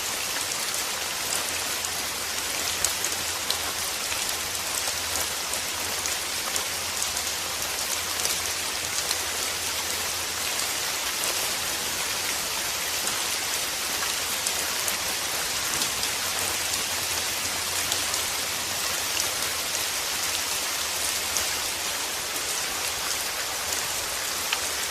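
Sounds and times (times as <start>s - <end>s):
steady rain: 0.0s - 24.9s.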